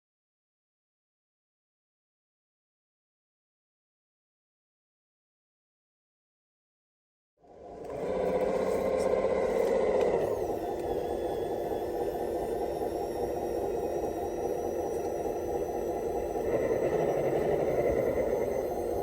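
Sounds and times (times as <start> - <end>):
electric drive motors: 7.4 - 19.0
simulated engine note: 8.2 - 19.0.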